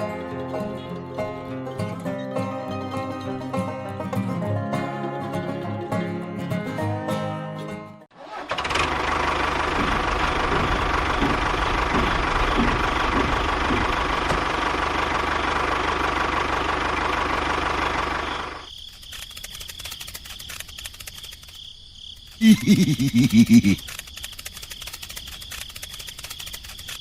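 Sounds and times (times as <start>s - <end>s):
small machine rapid rattle: 8.4s - 21.6s, 23.4s - 27.0s.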